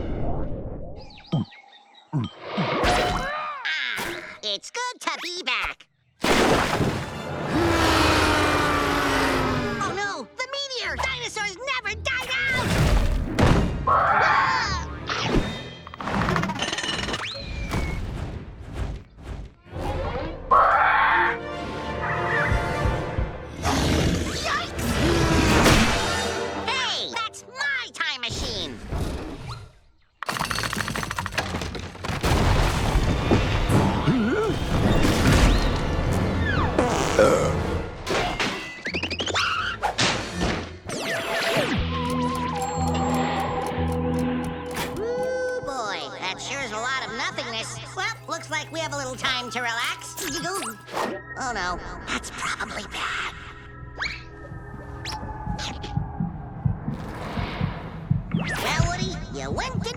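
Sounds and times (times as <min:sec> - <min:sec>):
thuds and crashes: 0:12.6 - 0:13.8, 0:30.3 - 0:36.0.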